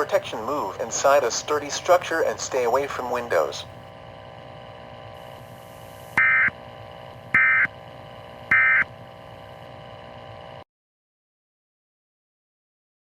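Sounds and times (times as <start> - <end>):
radio hiss: 0.0 - 10.6
digital data warbling buzz: 6.2 - 6.6, 7.3 - 7.7, 8.5 - 8.9.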